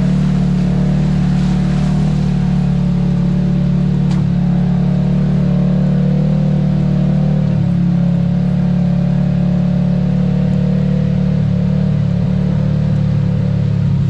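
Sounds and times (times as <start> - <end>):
utility vehicle engine droning: 0.0 - 14.0.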